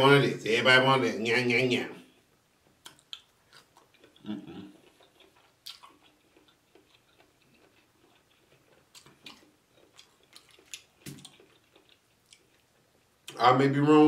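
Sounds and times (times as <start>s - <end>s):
person chewing wetly: 2.8s - 13.4s.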